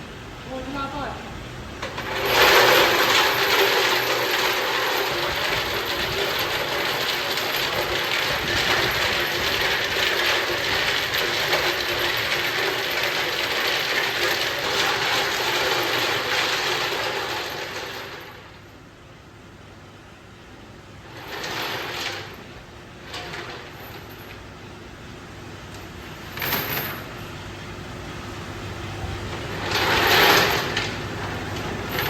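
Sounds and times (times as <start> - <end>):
workshop machine clattering: 1.8 - 18.4, 29.2 - 32.0.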